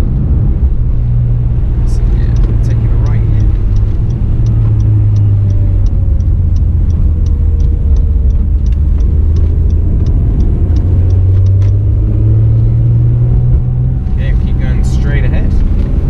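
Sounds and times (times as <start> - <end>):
car engine drone in cabin: 0.0 - 16.0
light ticking: 1.8 - 12.0.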